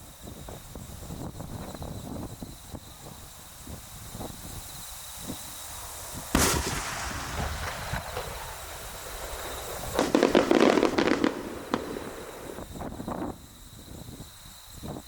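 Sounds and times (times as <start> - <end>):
fireworks crackling bursts: 4.5 - 13.4
firework boom: 6.2 - 13.1.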